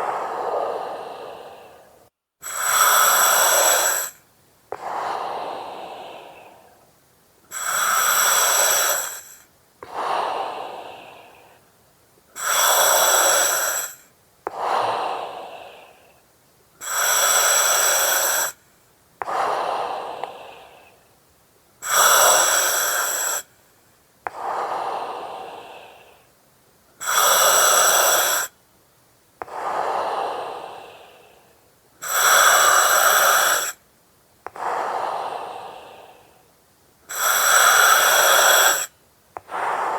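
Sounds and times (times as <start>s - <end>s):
breathing through oxygen mask: 0.0s - 6.8s, 7.5s - 11.6s, 12.4s - 16.2s, 16.8s - 18.6s, 19.2s - 21.0s, 21.8s - 23.5s, 24.3s - 26.3s, 27.0s - 28.5s, 29.4s - 33.8s, 34.5s - 36.4s, 37.1s - 39.9s.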